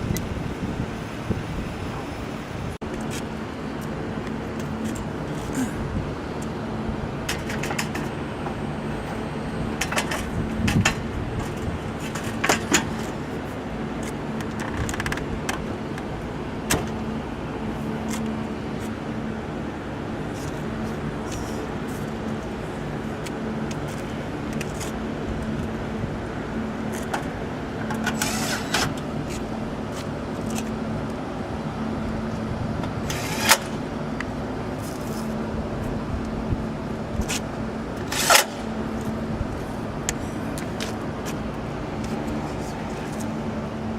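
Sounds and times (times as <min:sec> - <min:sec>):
sharp clicks and metallic knocks: 0:07.2 - 0:08.6, 0:09.8 - 0:13.2
rushing scraping noises: 0:28.0 - 0:30.7.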